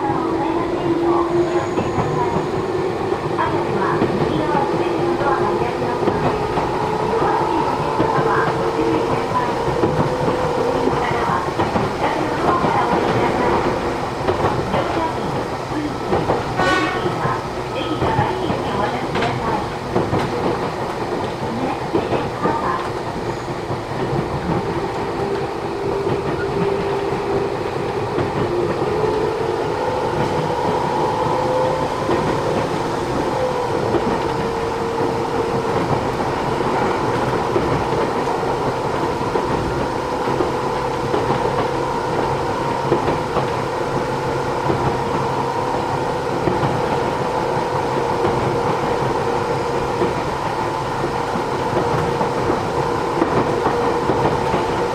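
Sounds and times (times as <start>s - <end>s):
clickety-clack of rail joints: 0.0s - 54.9s
wheel and rail noise: 0.0s - 54.9s.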